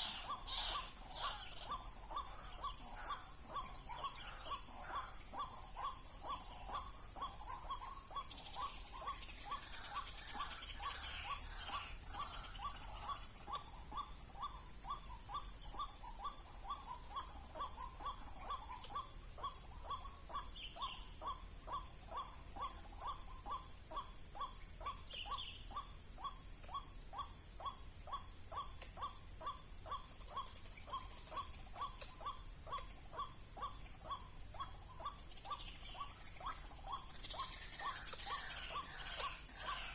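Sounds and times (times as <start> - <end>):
bird harsh repeated call: 0.0 - 39.9
birds chirping: 0.0 - 39.9
steady high hiss: 0.0 - 39.9.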